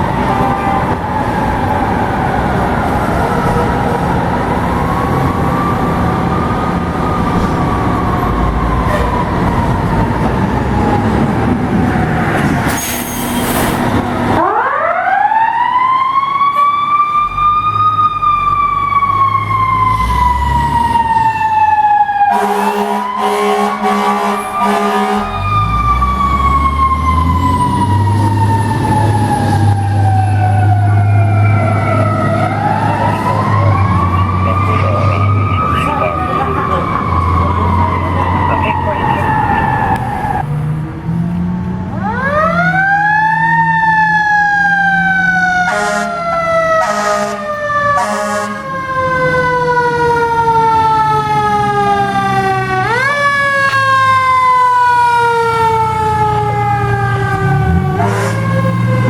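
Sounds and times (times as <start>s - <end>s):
fire truck sirens wailing: 0.0s - 59.0s
truck engine rumble: 0.0s - 59.0s
horn blast: 22.3s - 25.4s, 45.7s - 46.2s, 46.8s - 48.7s, 57.9s - 58.8s.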